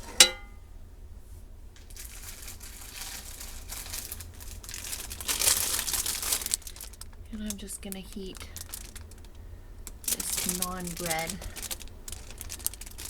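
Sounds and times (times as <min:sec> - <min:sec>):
metal clank: 0:00.0 - 0:00.6
plastic packaging crinkling: 0:01.8 - 0:13.0.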